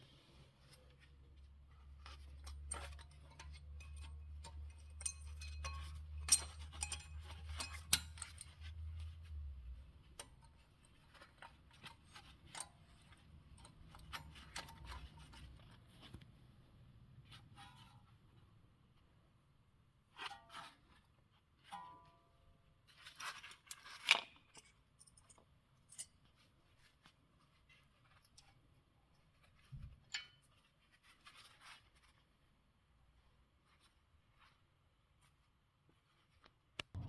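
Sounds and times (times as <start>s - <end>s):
metallic tool clinks: 3.8s - 8.5s.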